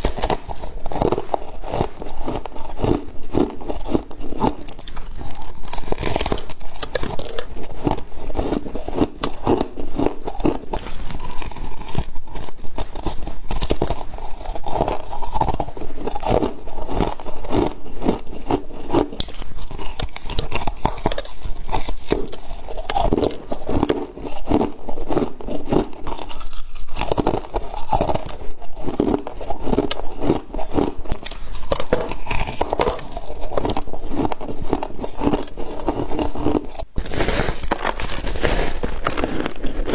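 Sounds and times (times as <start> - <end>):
crunching and chewing frost: 0.0 - 39.9.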